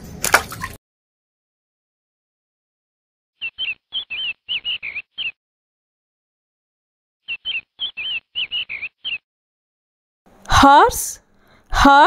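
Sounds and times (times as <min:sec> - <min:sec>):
small bird chirping: 0:03.4 - 0:05.4, 0:07.2 - 0:09.2.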